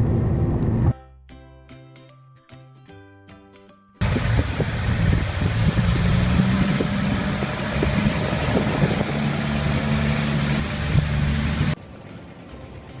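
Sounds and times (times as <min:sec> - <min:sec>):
engine running: 0:00.0 - 0:00.9, 0:04.0 - 0:13.0
loud rushing noise: 0:00.0 - 0:00.9.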